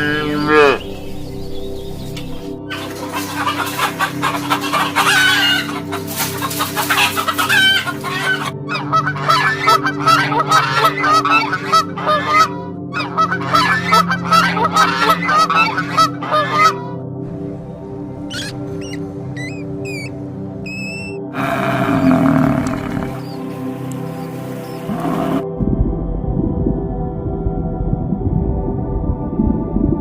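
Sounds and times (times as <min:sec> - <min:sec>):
steady low background tone: 0:00.0 - 0:03.3
flock of poultry calling: 0:02.7 - 0:17.0, 0:18.3 - 0:23.6.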